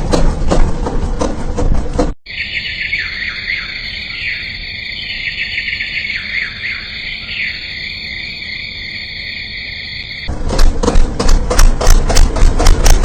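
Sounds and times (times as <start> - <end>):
insects chirping: 2.2 - 10.3.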